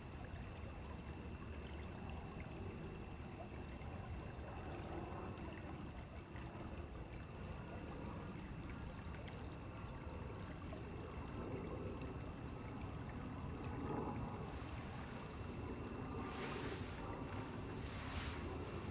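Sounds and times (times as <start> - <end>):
stream water flowing: 8.6 - 18.9.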